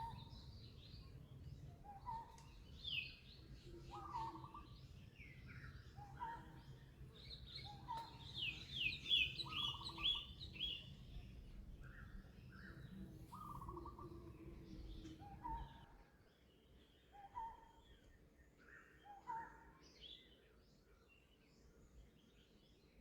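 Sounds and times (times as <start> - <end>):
birds chirping: 0.0 - 11.2
faint background noise: 0.0 - 23.0.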